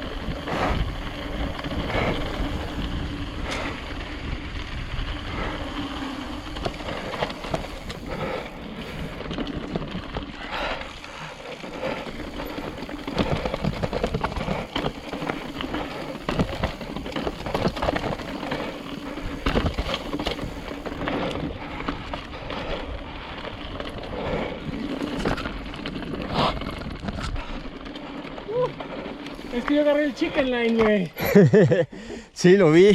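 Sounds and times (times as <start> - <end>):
tyres crunching over dirt: 0.0 - 31.7
bike knocks and rattles: 11.8 - 22.7.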